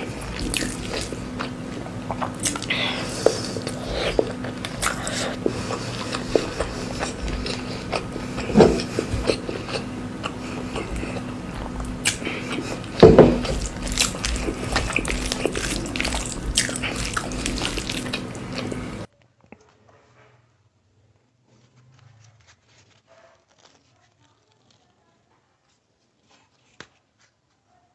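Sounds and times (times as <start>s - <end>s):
faint hum: 0.0s - 19.1s
person chewing food: 0.0s - 19.1s
wet mouth clicks: 0.1s - 18.9s.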